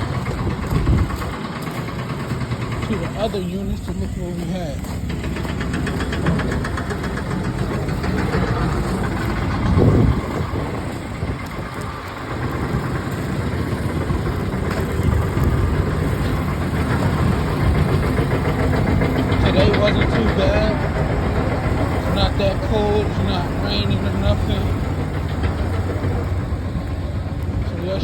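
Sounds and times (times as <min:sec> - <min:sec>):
heavy machinery droning: 0:00.0 - 0:28.0.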